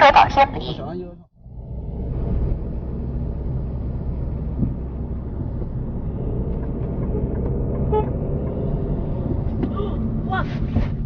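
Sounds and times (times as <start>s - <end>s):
road noise: 0.0s - 11.0s
car engine rumble: 0.1s - 11.0s.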